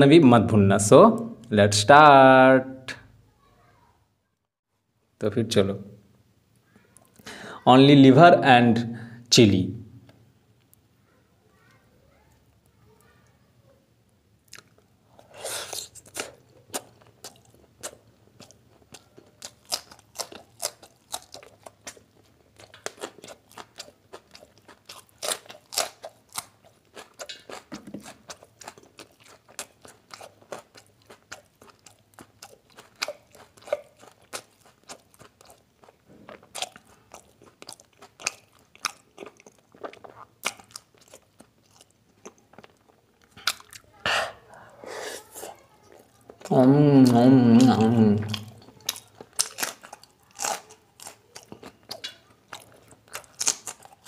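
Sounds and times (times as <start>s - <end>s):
person chewing with crunching: 14.4s - 54.0s.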